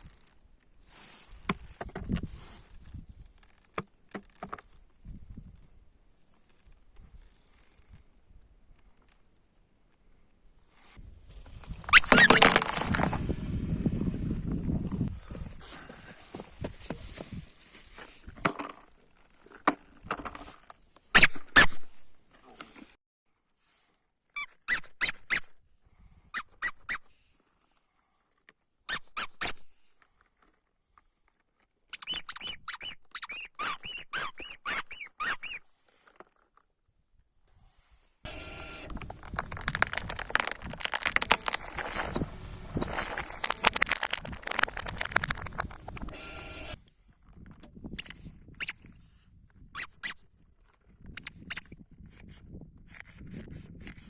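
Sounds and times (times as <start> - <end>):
squeaks: 11.9 - 13.2, 21.2 - 21.8, 24.4 - 25.5, 26.4 - 27.1, 28.9 - 29.6, 31.9 - 35.6, 38.8 - 46.8, 49.7 - 50.2
sharp clicks: 38.8 - 46.2
crackling: 38.8 - 46.7.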